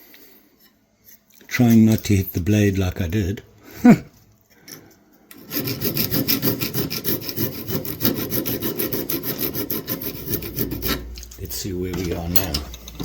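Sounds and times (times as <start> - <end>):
file scraping on steel blade: 5.3 - 11.4.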